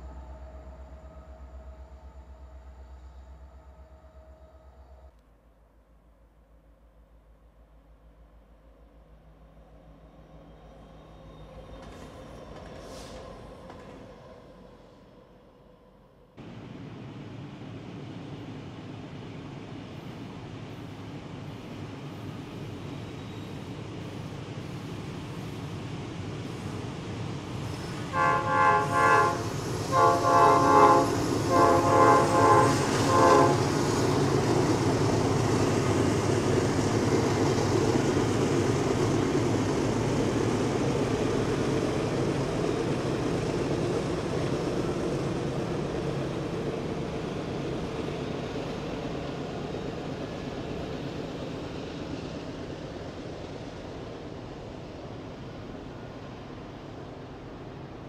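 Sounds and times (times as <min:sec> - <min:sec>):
freight train rumbling by: 0:00.0 - 0:05.2, 0:06.0 - 0:58.0
locomotive air horn blasts: 0:28.1 - 0:33.8.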